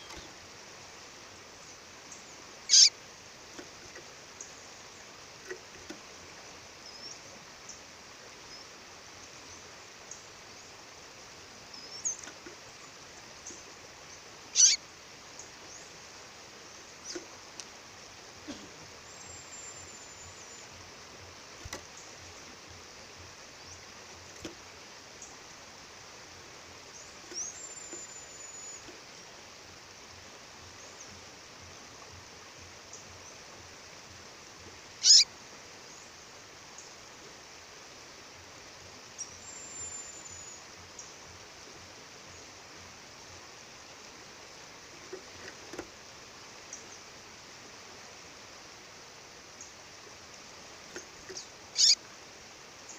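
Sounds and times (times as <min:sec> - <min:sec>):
songbird calling: 0:00.0 - 0:00.4, 0:01.6 - 0:05.9, 0:06.6 - 0:10.8, 0:11.5 - 0:16.0, 0:16.6 - 0:20.8, 0:26.8 - 0:29.4, 0:34.8 - 0:36.2, 0:39.1 - 0:41.2, 0:50.9 - 0:52.1
loud sharp bird chirp: 0:02.7 - 0:02.9, 0:14.6 - 0:14.8, 0:35.0 - 0:35.3, 0:51.4 - 0:52.0.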